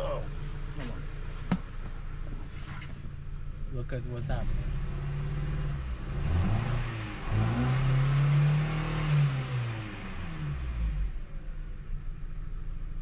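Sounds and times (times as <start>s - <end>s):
misfiring car engine revving: 4.2s - 11.7s.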